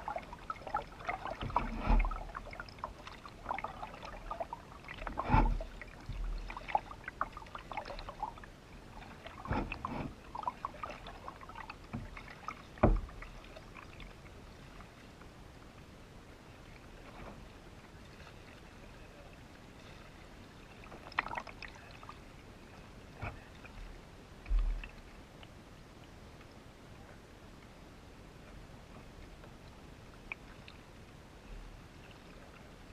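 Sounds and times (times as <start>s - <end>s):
paddle splashing in water: 0.0s - 15.2s, 16.6s - 25.2s
paddle knocks: 5.0s - 6.4s, 9.4s - 10.2s, 11.9s - 13.2s.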